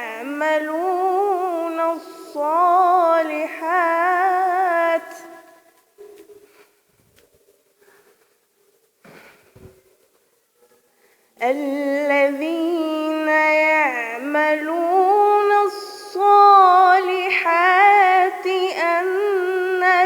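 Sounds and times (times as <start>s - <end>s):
woman reciting melodically: 0.0s - 5.7s, 11.4s - 20.0s.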